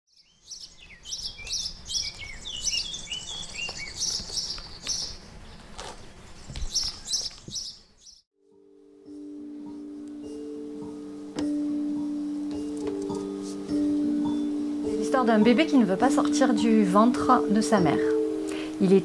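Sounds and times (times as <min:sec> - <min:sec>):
birds chirping and twittering: 0:00.1 - 0:08.3.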